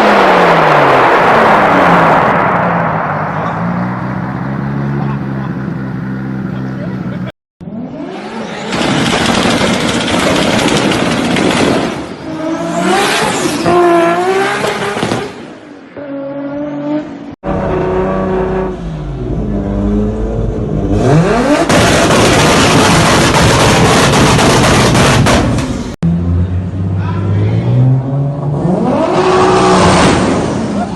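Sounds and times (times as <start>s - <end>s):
car engines revving and accelerating: 0.0s - 30.9s.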